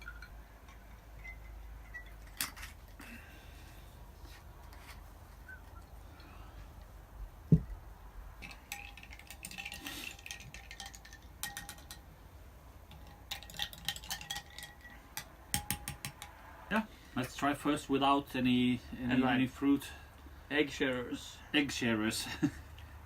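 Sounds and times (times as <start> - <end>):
glass and ice clinking: 0.0 - 2.9, 8.4 - 12.0, 12.9 - 16.3
dull thump: 7.5 - 7.8
liquid pouring: 8.4 - 11.9.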